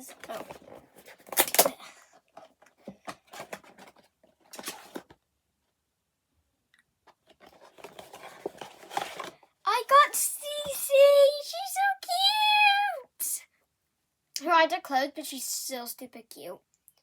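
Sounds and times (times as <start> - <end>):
packaging tearing and crinkling: 0.2 - 1.8.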